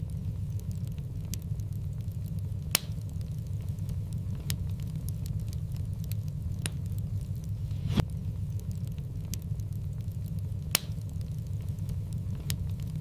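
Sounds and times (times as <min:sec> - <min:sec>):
fire rumbling and crackling: 0:00.0 - 0:13.0
sharp wood pops: 0:02.6 - 0:03.1, 0:10.6 - 0:11.1.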